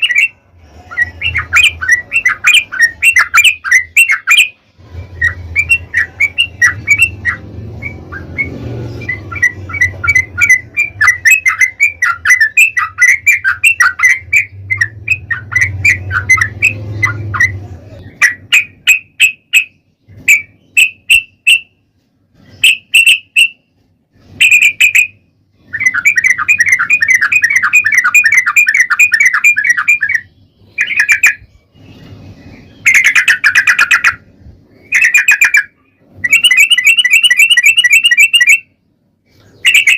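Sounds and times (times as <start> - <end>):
bulbul singing chattering notes: 0.0 - 4.6, 5.2 - 21.7, 32.7 - 38.7, 39.6 - 39.9.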